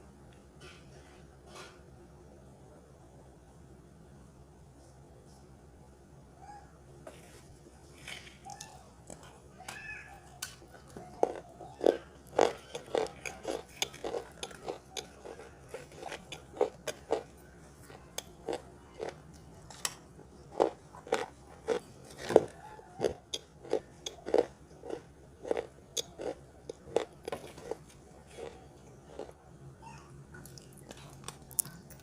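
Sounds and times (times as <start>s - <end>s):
dry crunches of chewing chalk: 10.7s - 19.4s, 20.5s - 29.4s, 30.4s - 32.0s.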